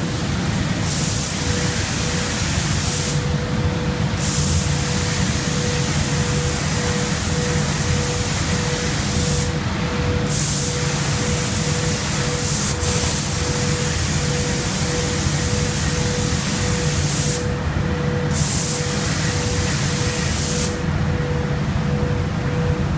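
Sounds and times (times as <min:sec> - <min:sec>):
low machine hum: 0:00.0 - 0:22.9
paint spray gun hissing: 0:00.9 - 0:03.3, 0:04.2 - 0:09.6, 0:10.3 - 0:17.6, 0:18.3 - 0:20.8
faint pulsing tone: 0:04.8 - 0:17.0, 0:21.0 - 0:22.9.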